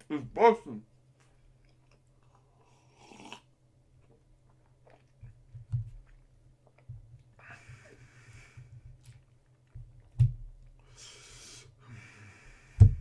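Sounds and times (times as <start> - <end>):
chewing and mouth noises: 1.2 - 3.4, 4.0 - 7.4, 8.9 - 10.1.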